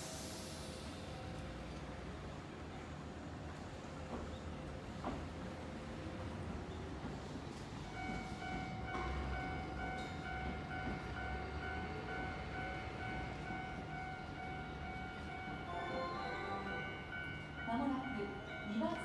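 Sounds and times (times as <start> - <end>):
electric train rumble: 0.0 - 19.0
high warning tone: 12.2 - 19.0.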